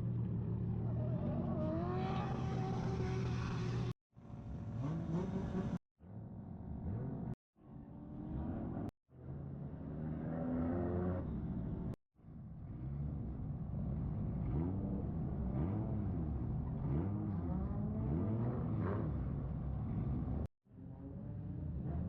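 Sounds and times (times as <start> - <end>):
car engines revving: 0.0 - 5.8, 6.5 - 12.0, 12.6 - 22.0.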